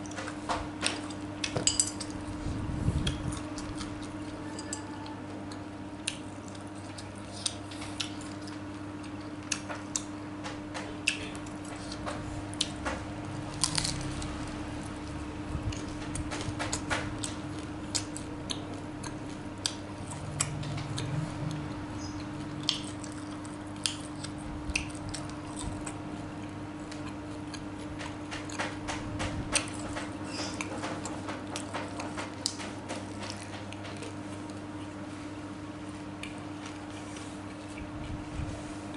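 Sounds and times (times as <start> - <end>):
steady low hum: 0.0 - 38.9
chewing with wet mouth clicks: 3.0 - 12.8, 15.7 - 28.8, 36.0 - 38.2.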